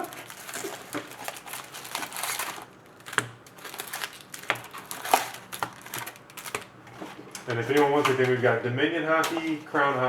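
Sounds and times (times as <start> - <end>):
card packaging crinkling and tearing: 0.0 - 6.8.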